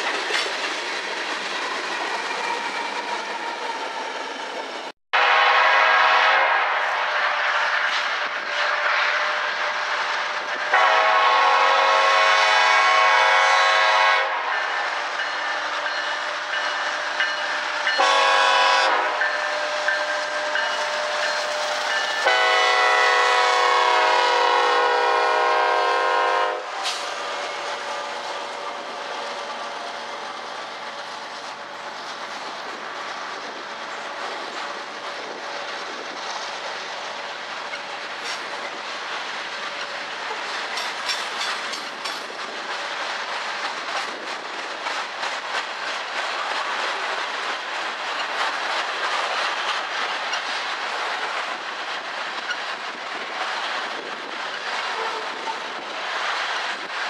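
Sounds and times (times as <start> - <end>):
train wheels on rails: 0.0 - 57.0
locomotive air horn blasts: 5.2 - 8.0, 10.7 - 14.6, 18.0 - 19.8, 22.2 - 26.8.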